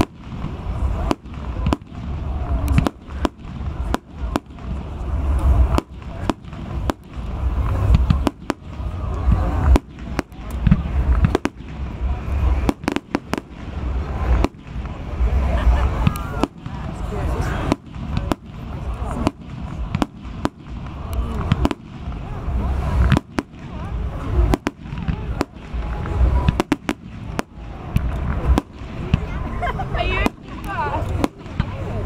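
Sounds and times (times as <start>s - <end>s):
fireworks bangs: 0.0s - 32.0s
low rumble: 0.0s - 32.0s.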